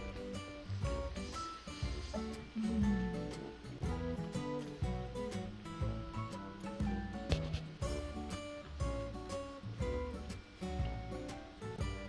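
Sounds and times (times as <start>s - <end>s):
bass line: 0.0s - 12.0s
plucked acoustic guitar: 0.0s - 12.0s.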